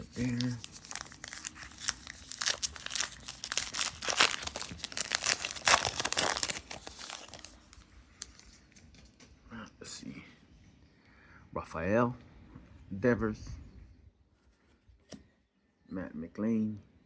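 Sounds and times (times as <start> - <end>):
wrapper and cards crinkling: 0.0 - 8.6.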